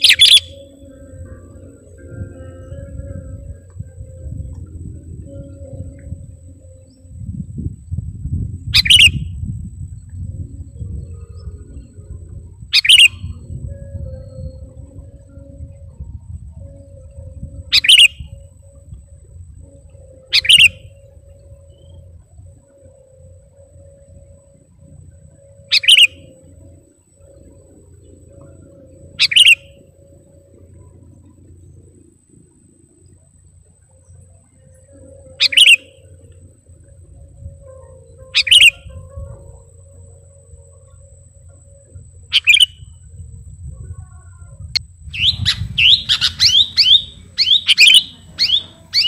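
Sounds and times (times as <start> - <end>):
bird calls: 0.0 - 3.2, 8.8 - 9.3, 12.7 - 13.4, 17.7 - 18.4, 20.0 - 22.0, 25.3 - 31.4, 34.0 - 36.3, 37.8 - 41.0, 41.8 - 43.0, 43.9 - 49.0
faint steady hum: 0.0 - 49.0
low rumble: 0.0 - 49.0.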